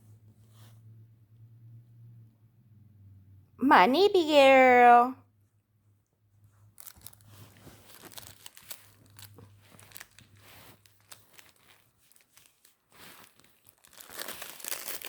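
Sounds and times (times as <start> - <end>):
plastic rustling and crackling: 6.6 - 15.0.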